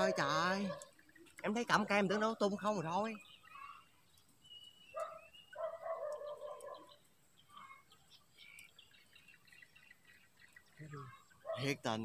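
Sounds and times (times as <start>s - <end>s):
faint bird chirps: 0.0s - 12.0s
faint bird calls: 3.1s - 11.8s.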